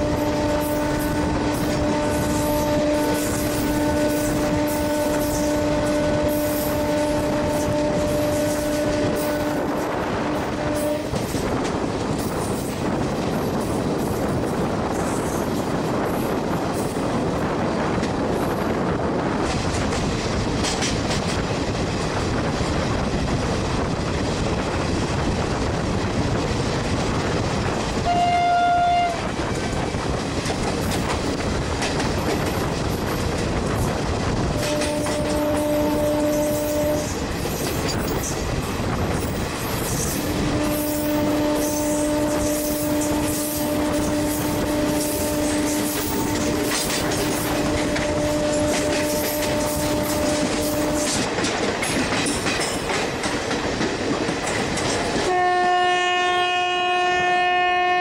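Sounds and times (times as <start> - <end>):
train horn blast: 0.0 - 11.4, 28.0 - 29.4, 34.5 - 37.2, 40.2 - 51.3, 55.2 - 58.0
train wheels on rails: 0.0 - 58.0.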